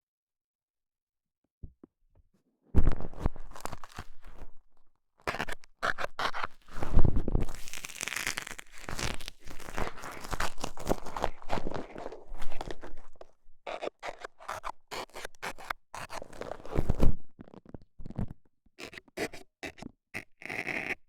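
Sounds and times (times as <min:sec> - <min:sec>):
dental scaler scratching in ear: 0:18.8 - 0:21.0.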